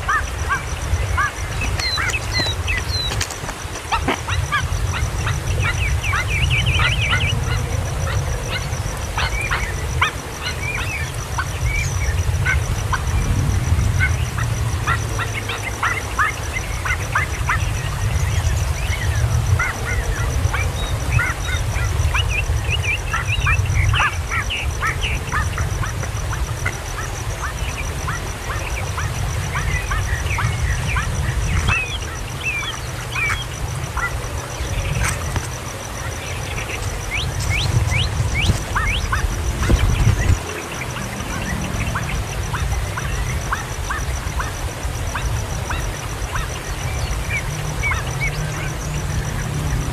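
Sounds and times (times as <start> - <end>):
kingfisher chicks chirping: 0.0 - 13.3, 14.0 - 49.9.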